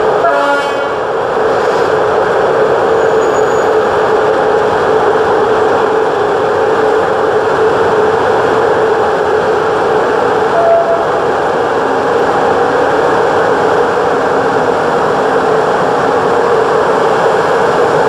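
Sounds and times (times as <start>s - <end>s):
train rolling on rails: 0.0s - 18.0s
brief tone: 10.5s - 11.1s.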